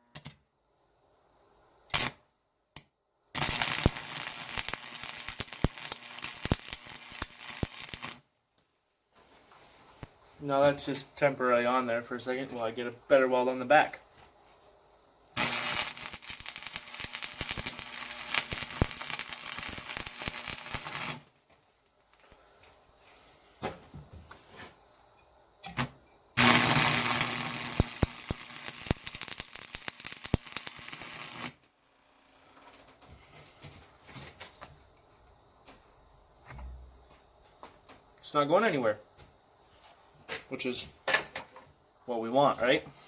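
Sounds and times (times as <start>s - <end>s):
welding arc crackle and sizzle: 3.3s - 8.2s, 15.4s - 21.4s, 25.7s - 31.7s.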